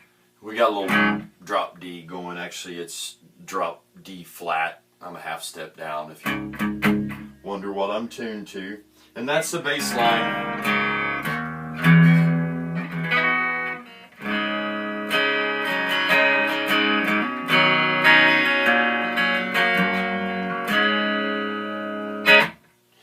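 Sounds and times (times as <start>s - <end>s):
distorted electric guitar riff: 0.8s - 1.3s, 6.2s - 7.4s, 9.7s - 22.6s.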